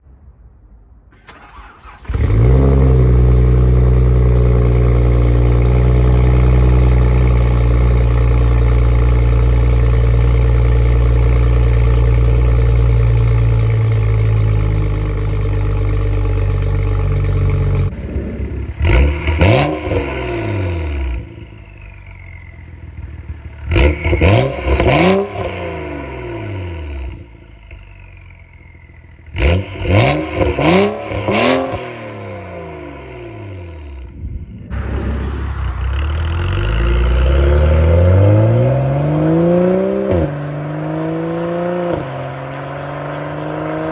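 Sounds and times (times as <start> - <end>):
car engine cold start: 1.1 - 5.1
car engine idling: 1.2 - 18.8, 21.1 - 37.7
engine revving: 1.3 - 22.0, 22.9 - 28.1, 29.2 - 43.9.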